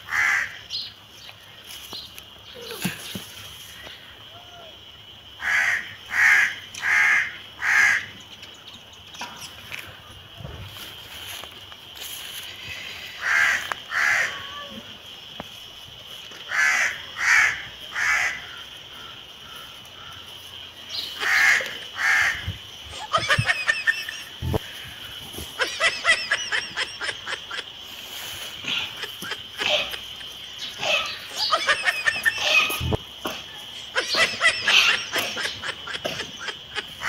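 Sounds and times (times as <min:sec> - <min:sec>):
crows cawing: 0:00.1 - 0:00.6, 0:05.4 - 0:08.1, 0:13.2 - 0:14.4, 0:16.5 - 0:20.3, 0:20.9 - 0:22.6.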